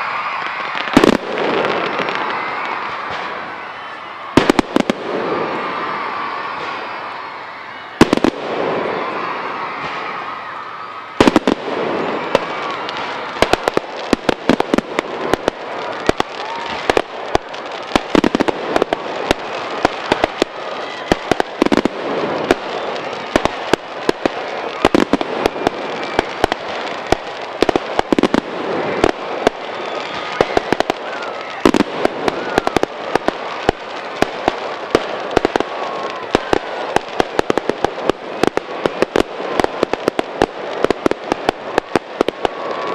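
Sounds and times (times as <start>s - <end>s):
fireworks bangs: 0.0s - 42.9s
fireworks crackling: 0.0s - 42.9s.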